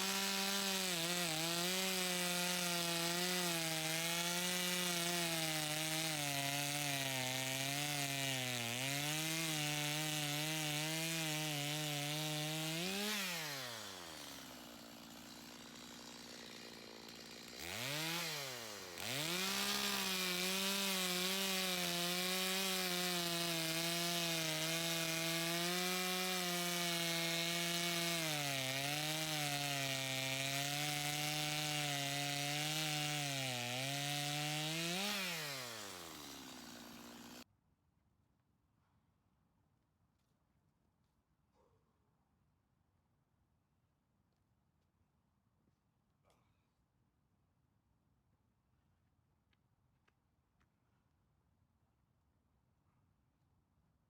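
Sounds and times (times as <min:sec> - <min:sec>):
chainsaw cutting through log: 0:00.0 - 0:37.4.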